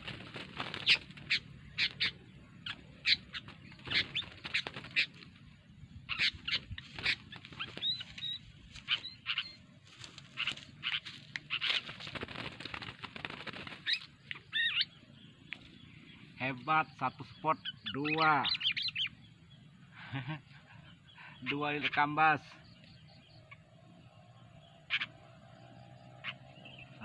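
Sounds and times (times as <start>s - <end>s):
bird wings fluttering: 0.0s - 2.2s, 3.1s - 5.5s, 6.2s - 14.3s
bird chirping: 0.0s - 27.0s.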